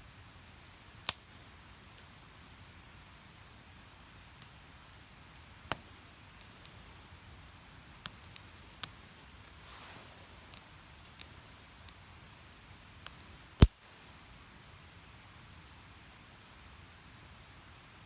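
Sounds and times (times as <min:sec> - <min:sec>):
low steady hiss: 0:00.0 - 0:18.0
wood fire crackling: 0:00.4 - 0:17.9
pops and snaps of firewood: 0:01.0 - 0:01.4, 0:05.3 - 0:14.0.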